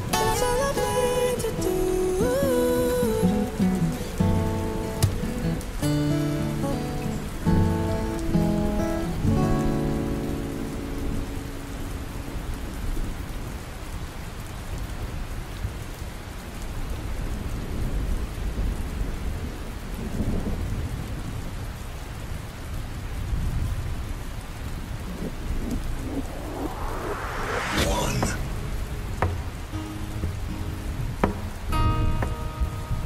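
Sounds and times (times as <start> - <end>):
steady rain: 0.0 - 33.0
low rolling thunder: 23.3 - 29.7
rising whoosh: 25.1 - 29.7.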